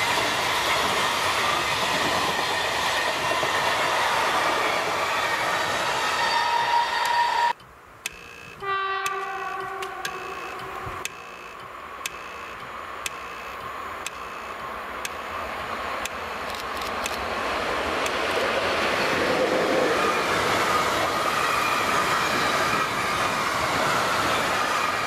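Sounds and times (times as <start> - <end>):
freight train passing: 0.0 - 7.6, 8.6 - 25.0
high whine of train wheels: 0.0 - 7.6, 8.5 - 25.0
faint ticking: 7.5 - 15.3.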